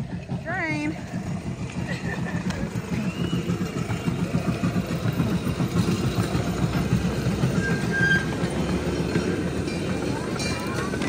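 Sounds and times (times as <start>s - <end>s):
train engine rumbling: 0.0s - 11.0s.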